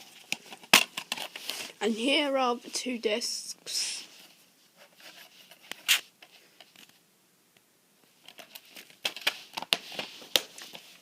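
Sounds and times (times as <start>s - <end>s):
plastic case clicking and crinkling: 0.0s - 1.6s, 8.2s - 11.0s.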